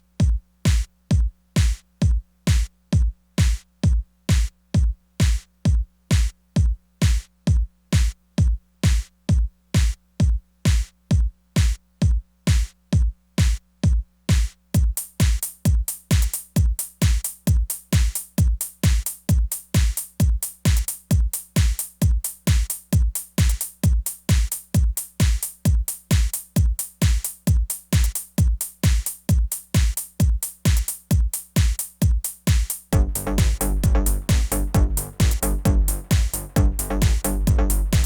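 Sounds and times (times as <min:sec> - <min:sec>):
kick drum beat: 0:00.0 - 0:38.0
extra drum hits: 0:32.5 - 0:38.0
low bass tone: 0:33.0 - 0:38.0.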